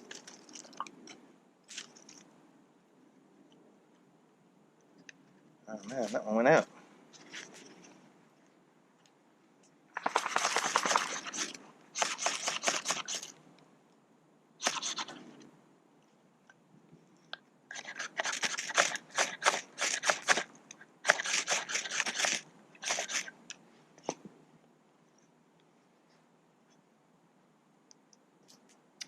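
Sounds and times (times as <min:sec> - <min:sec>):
ferro rod scraped with striker: 0:14.6 - 0:15.2, 0:17.7 - 0:23.3.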